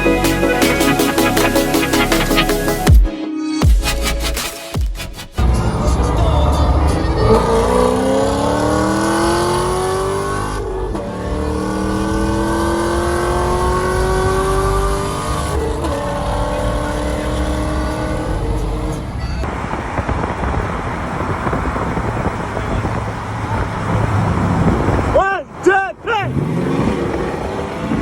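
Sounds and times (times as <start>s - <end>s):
car engine accelerating: 5.4s - 25.6s, 26.2s - 28.0s.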